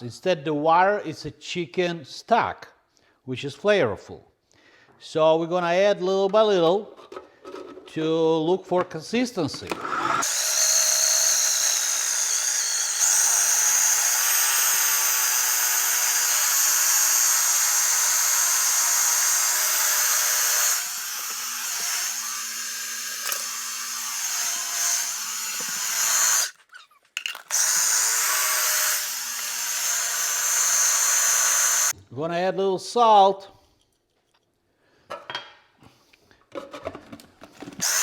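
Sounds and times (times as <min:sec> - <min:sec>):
food processor motor whining: 0:09.7 - 0:26.6, 0:27.3 - 0:31.9, 0:37.8 - 0:38.0.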